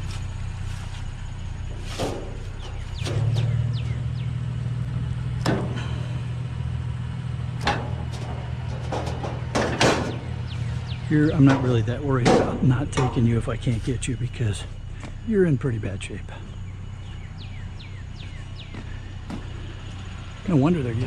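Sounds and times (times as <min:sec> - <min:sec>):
vehicle engine idling: 0:00.0 - 0:21.0
sharp metallic knocks: 0:01.7 - 0:04.0, 0:05.4 - 0:06.1, 0:07.6 - 0:13.5.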